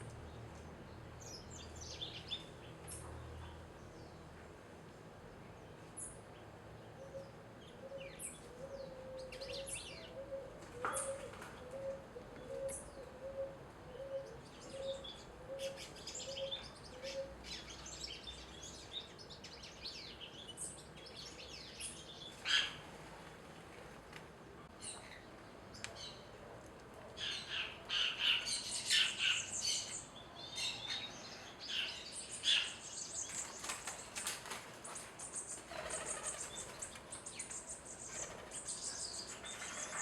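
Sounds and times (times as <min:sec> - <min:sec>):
small birds chirping: 0:27.2 - 0:40.0.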